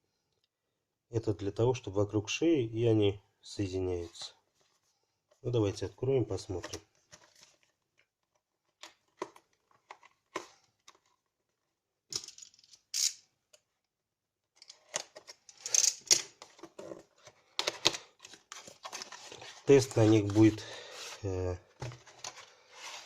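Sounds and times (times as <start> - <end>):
packaging clicks and taps: 8.3 - 11.1, 16.0 - 19.4
packaging rustling and crinkling: 16.3 - 23.0.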